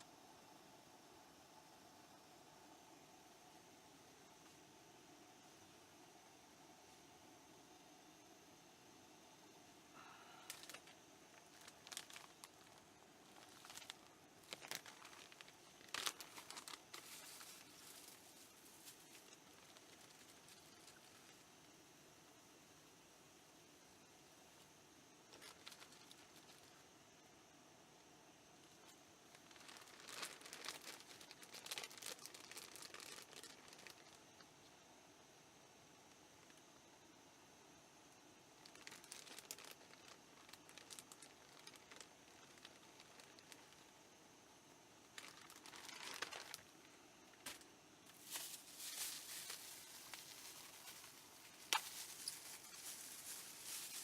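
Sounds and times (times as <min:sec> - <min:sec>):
faint steady high hiss: 0:00.0 - 0:54.0
packaging crinkling and rustling: 0:10.5 - 0:21.4, 0:25.3 - 0:26.8, 0:28.8 - 0:34.4, 0:38.6 - 0:43.9, 0:45.0 - 0:54.0.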